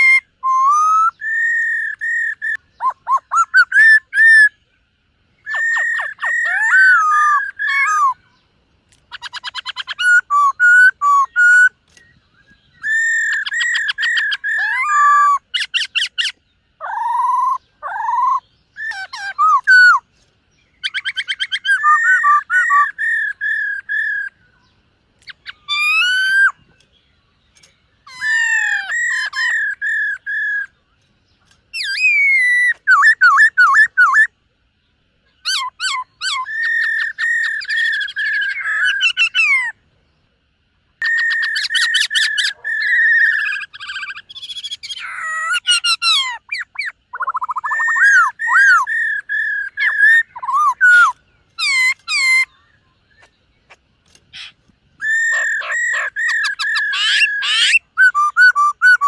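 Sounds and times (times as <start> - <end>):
bird singing whistled phrases: 0.0 - 4.6, 5.4 - 8.4, 9.1 - 20.0, 20.7 - 26.6, 27.6 - 30.8, 31.7 - 34.3, 41.0 - 53.3, 54.4 - 59.0.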